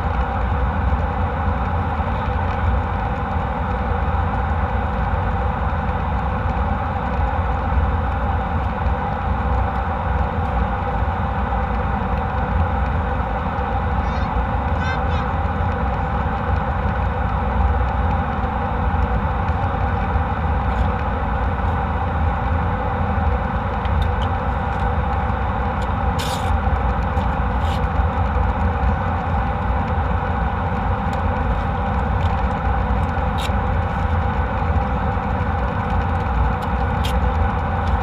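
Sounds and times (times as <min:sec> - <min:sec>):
constant hum: 0:00.0 - 0:38.0
jet engine cabin rumble: 0:00.0 - 0:38.0.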